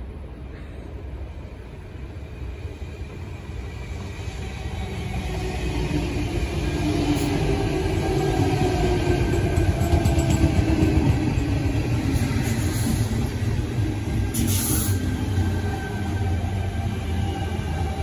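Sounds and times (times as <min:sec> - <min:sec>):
electric train passing: 0:01.0 - 0:18.0.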